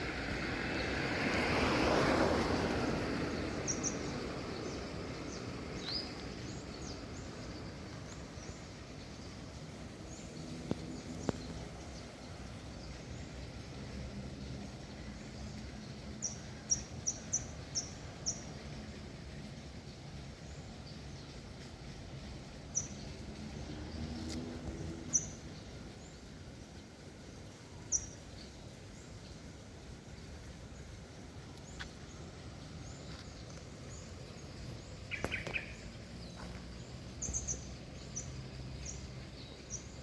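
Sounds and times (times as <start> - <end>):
songbird chirping: 0.0 - 40.0.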